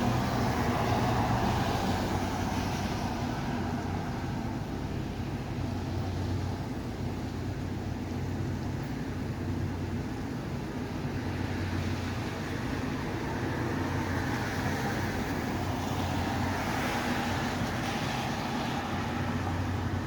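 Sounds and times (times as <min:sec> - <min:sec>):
road noise hiss: 0:00.0 - 0:20.0
vehicle low hum: 0:00.0 - 0:20.0.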